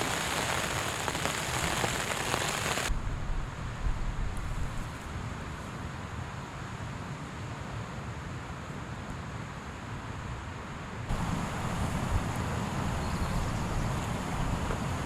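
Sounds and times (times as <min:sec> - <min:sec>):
wind on microphone: 0:11.1 - 0:15.0.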